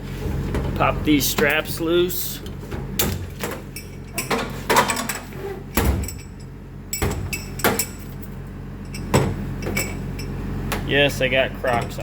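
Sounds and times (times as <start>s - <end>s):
hardware clanking: 2.4s - 10.9s, 11.6s - 12.0s.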